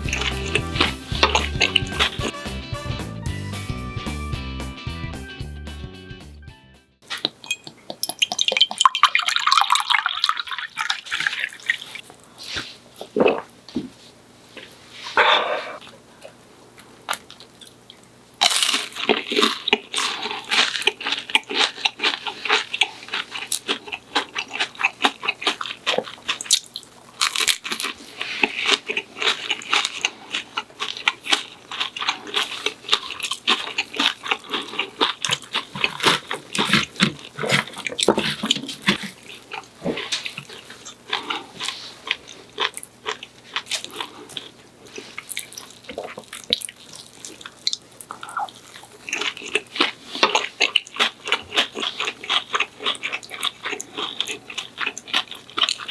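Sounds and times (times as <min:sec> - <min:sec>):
chewing crunchy food: 0:00.0 - 0:02.3, 0:07.1 - 0:13.7, 0:14.5 - 0:55.9.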